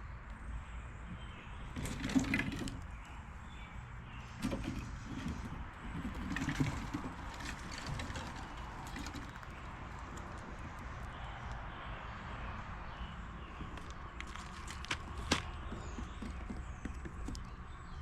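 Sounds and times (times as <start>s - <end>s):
squirrels scurrying and nibbling: 1.2s - 12.2s, 13.0s - 18.0s.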